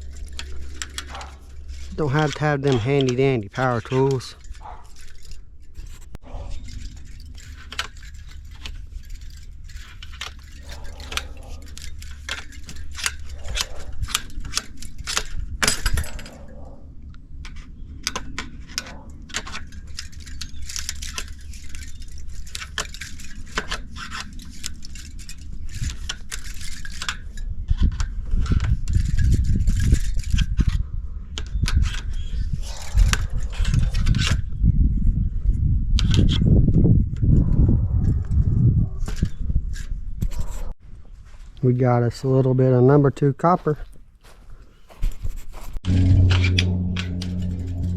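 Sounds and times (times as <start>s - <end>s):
metal clinking and scraping: 0.0s - 34.5s, 45.0s - 47.9s
loud low rumbling: 45.7s - 47.9s.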